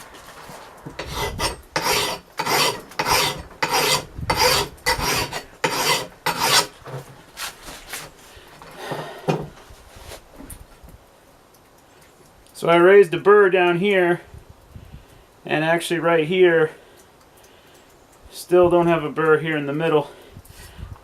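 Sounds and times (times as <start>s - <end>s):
hand file rasping on metal: 1.0s - 7.0s.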